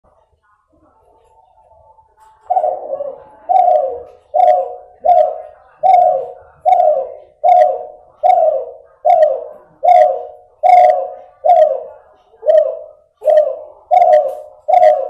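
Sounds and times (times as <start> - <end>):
dove cooing: 2.2 - 15.0.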